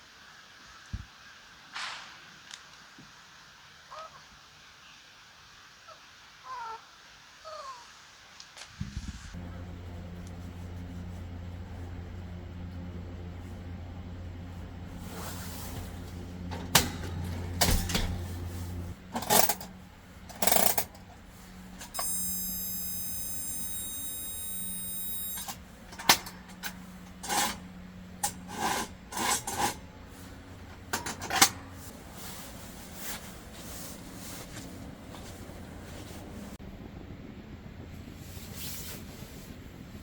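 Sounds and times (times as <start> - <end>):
steady high-pitched tone: 22.0 - 25.6.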